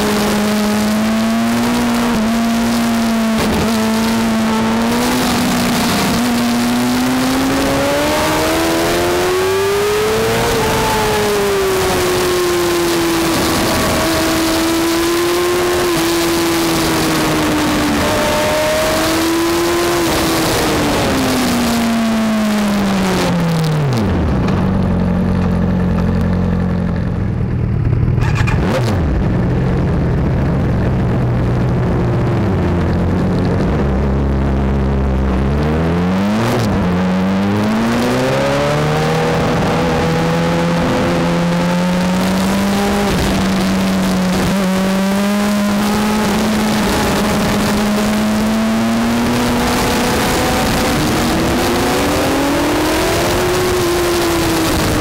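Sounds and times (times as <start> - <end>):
motorcycle engine revving: 0.0 - 55.0
wind rush: 28.2 - 55.0.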